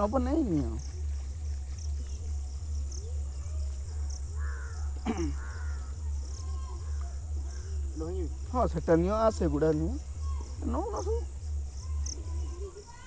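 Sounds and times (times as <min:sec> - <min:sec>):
steady low rumble: 0:00.0 - 0:13.0
harsh bird calls: 0:03.3 - 0:13.0.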